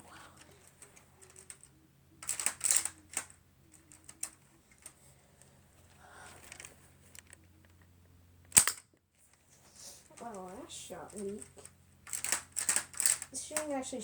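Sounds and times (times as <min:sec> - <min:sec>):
rubber-band rifle plastic snap: 0:08.5 - 0:08.9.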